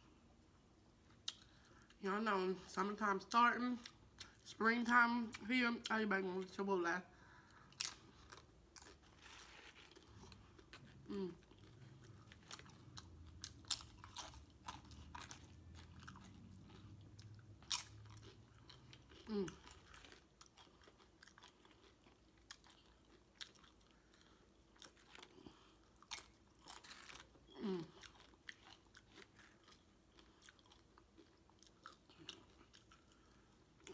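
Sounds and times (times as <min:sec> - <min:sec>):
faint low hum: 0:00.0 - 0:33.9
person chewing food: 0:01.0 - 0:02.0, 0:07.3 - 0:33.9
person humming mm: 0:11.1 - 0:11.4, 0:27.6 - 0:27.9.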